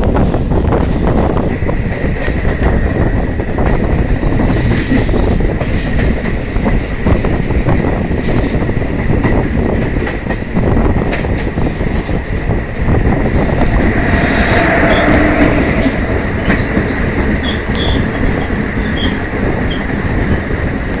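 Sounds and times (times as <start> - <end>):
moving vehicle rumble: 11.1 - 20.5.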